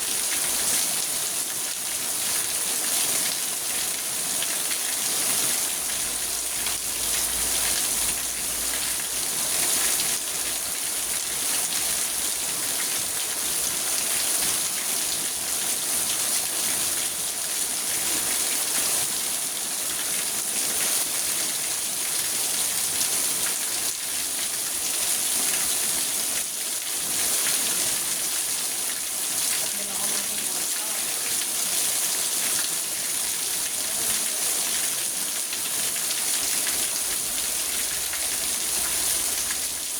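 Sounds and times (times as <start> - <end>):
rain on car roof: 29.0 - 31.5.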